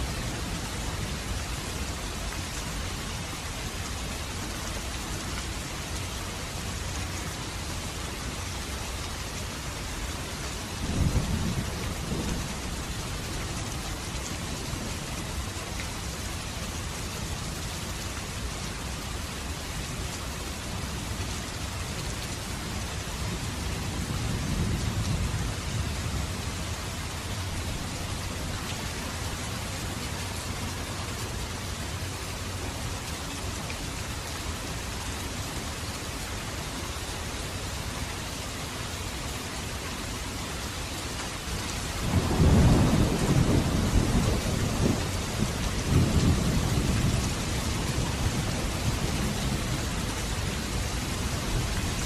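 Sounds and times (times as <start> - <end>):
heavy rain: 0.0 - 52.0
thunder rumbling: 42.0 - 52.0.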